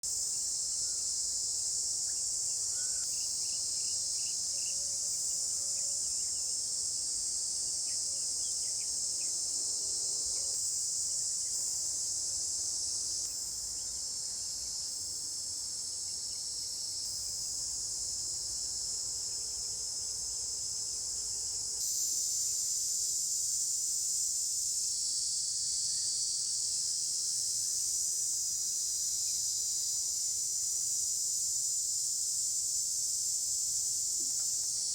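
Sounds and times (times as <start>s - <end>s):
insects chorus: 0.0s - 34.9s.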